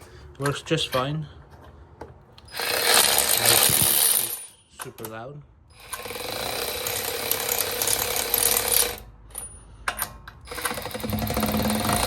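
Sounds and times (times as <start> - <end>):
ratchet wrench clicking: 2.4 - 4.5.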